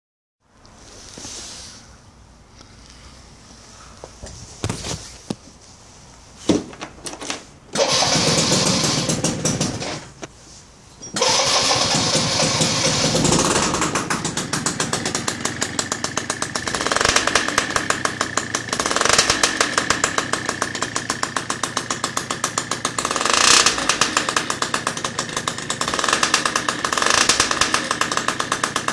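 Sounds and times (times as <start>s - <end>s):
scooter engine idling and revving: 7.7s - 10.2s, 11.2s - 28.9s.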